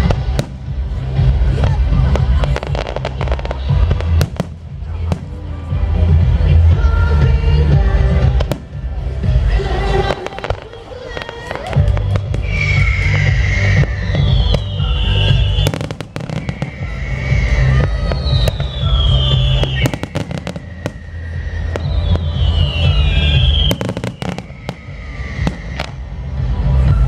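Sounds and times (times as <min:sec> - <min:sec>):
firework cracks and crackling: 0:00.0 - 0:06.7, 0:08.1 - 0:27.0
deep booming rumble: 0:00.0 - 0:10.2, 0:11.8 - 0:27.0
falling whistle: 0:12.3 - 0:26.1.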